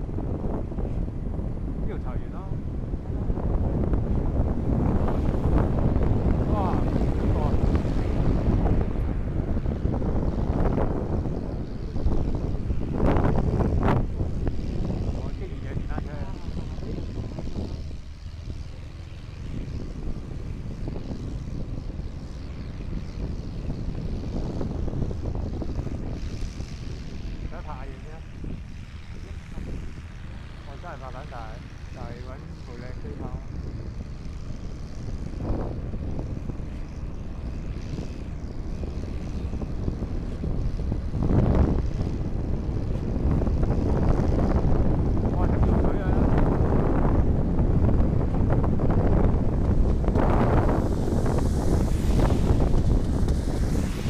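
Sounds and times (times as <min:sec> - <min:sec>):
motorcycle engine running: 0:00.0 - 0:54.0
wind rumbling on microphone: 0:00.0 - 0:54.0.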